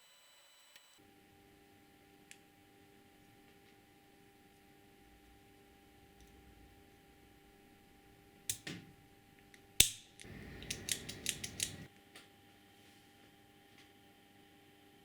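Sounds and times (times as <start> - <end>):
mechanical parts clicking: 10.2 - 11.9.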